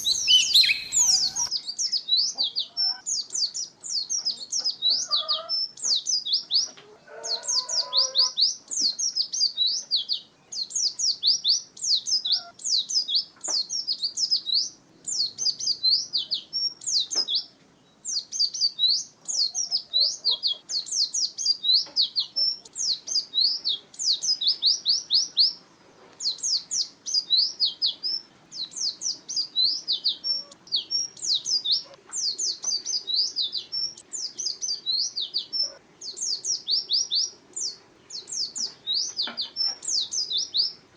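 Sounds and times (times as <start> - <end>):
bird twittering chirps: 0.0 - 6.7, 7.4 - 40.8.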